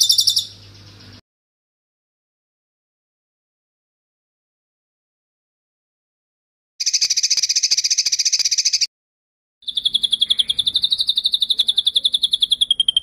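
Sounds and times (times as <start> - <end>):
songbird trilling: 0.0 - 1.2, 6.8 - 8.9, 9.6 - 13.0.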